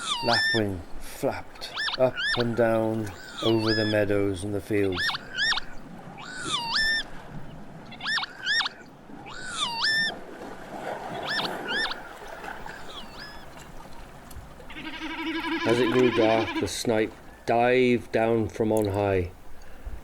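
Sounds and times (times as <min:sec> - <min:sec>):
lapwings calling: 0:00.0 - 0:00.8, 0:01.5 - 0:07.2, 0:07.8 - 0:10.2, 0:11.1 - 0:17.6.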